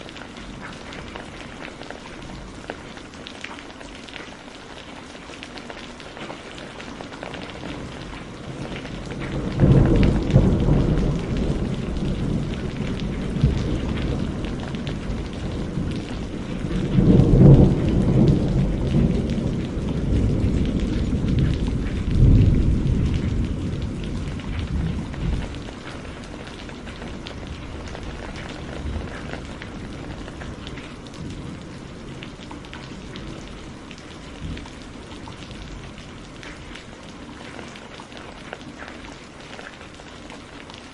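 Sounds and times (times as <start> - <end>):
heavy rain falling: 0.0 - 40.9
thunder rumbling: 7.4 - 36.7.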